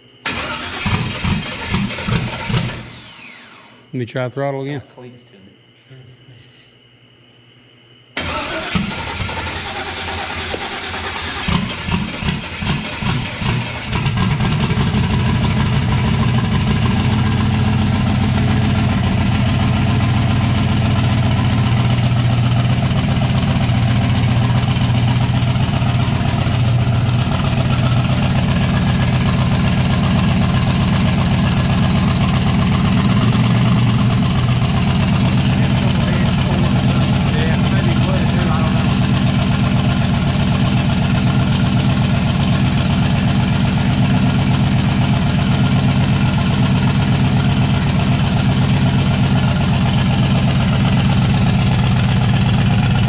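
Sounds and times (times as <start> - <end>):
engine cranking and running: 0.3 - 3.8, 8.2 - 53.0.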